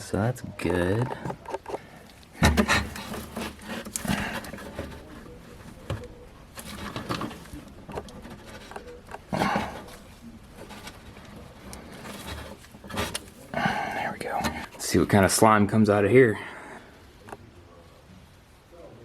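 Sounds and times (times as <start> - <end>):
tools clicking and scraping: 1.0 - 14.9.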